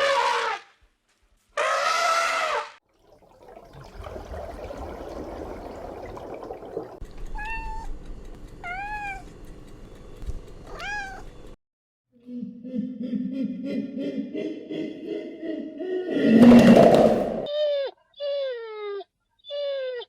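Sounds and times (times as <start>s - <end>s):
cat meowing: 7.3s - 7.9s, 8.6s - 9.3s, 10.7s - 11.3s.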